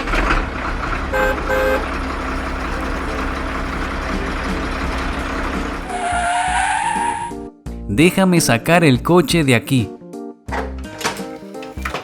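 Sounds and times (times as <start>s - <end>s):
heavy vehicle engine running: 0.0s - 7.0s.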